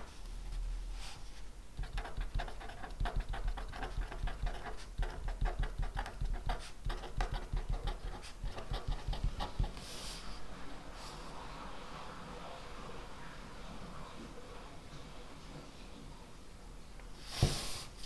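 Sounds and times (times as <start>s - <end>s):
pen scratching on paper: 1.8s - 10.0s.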